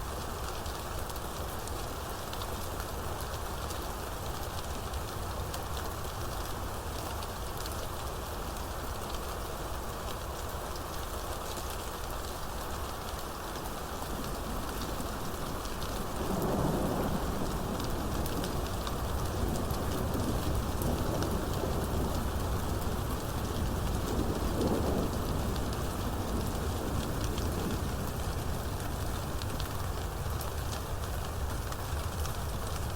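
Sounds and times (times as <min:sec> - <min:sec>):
steady rain falling: 0:00.0 - 0:32.9
thunder rumbling: 0:14.3 - 0:28.5.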